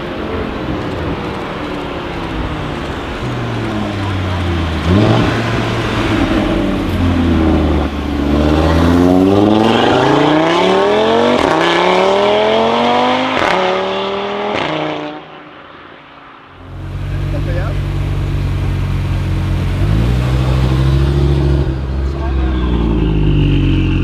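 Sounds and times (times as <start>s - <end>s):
exhaust cracks: 0.0s - 13.9s, 16.4s - 24.0s
car engine accelerating: 0.0s - 15.7s, 16.4s - 24.0s.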